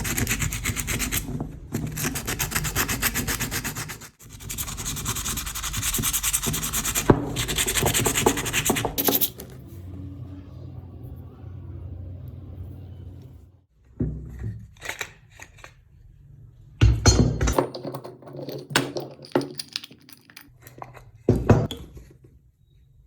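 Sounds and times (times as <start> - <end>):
machine hum: 9.2 - 13.7
workshop knocks and clatters: 13.9 - 14.8, 16.8 - 19.6, 21.2 - 22.0.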